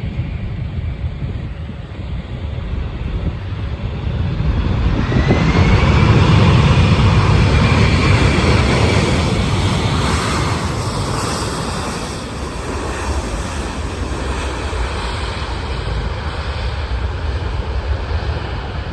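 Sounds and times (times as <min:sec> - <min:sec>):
jet airliner engine noise: 0:00.0 - 0:18.9.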